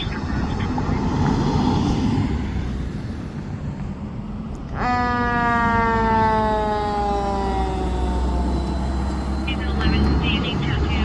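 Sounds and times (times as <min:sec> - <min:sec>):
truck engine rumble: 0:00.0 - 0:11.0
fire engine siren: 0:04.6 - 0:11.0.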